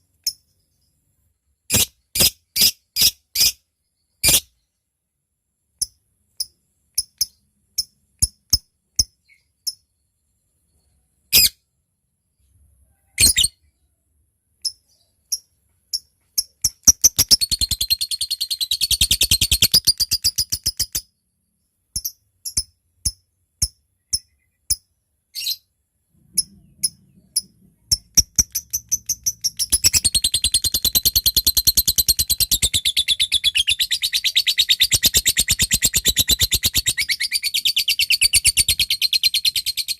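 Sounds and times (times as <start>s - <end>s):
lovebird chattering trill: 14.7s - 21.0s, 26.3s - 39.9s.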